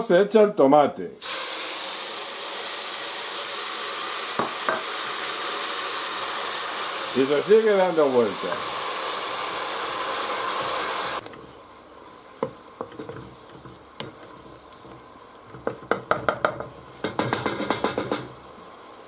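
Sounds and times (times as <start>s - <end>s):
food frying in oil: 1.2s - 19.0s
wooden spoon knocking on pot: 4.4s - 4.9s, 12.4s - 18.3s.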